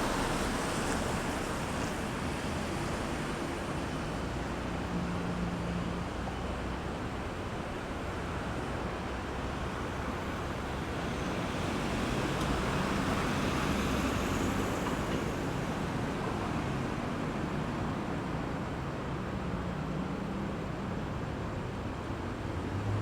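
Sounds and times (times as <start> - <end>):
road traffic: 0.0 - 23.0.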